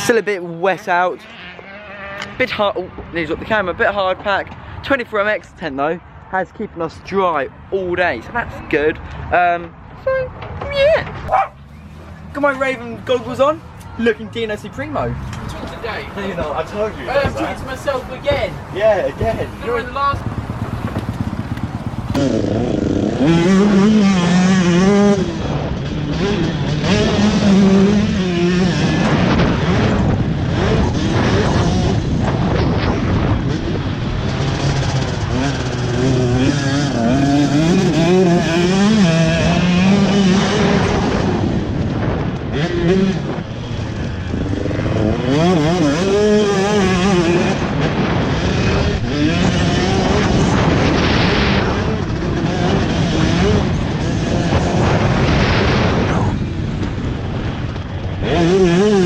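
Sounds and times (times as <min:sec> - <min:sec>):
dirt bike engine revving: 0:00.9 - 0:02.5, 0:14.6 - 0:59.0.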